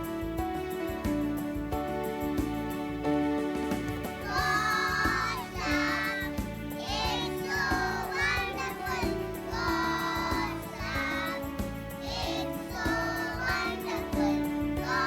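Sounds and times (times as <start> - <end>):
instrumental accompaniment: 0.0 - 15.0
children singing: 4.2 - 15.0.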